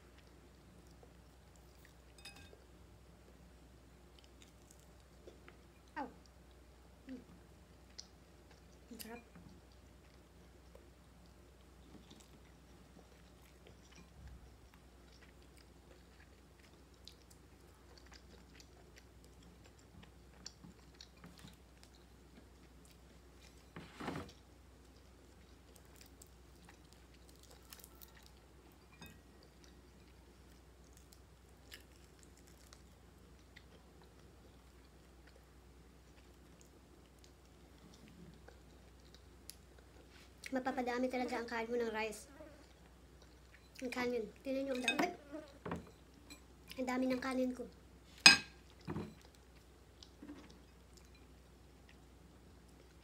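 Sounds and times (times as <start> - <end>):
person chewing food: 7.7 - 23.7, 24.3 - 40.5, 42.6 - 43.8, 47.9 - 53.0.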